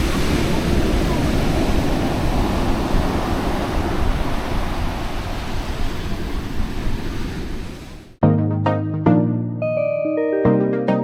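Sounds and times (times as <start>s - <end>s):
wind buffeting microphone: 0.0s - 8.1s
ocean surf breaking: 0.0s - 8.2s
melodic music: 8.2s - 11.0s.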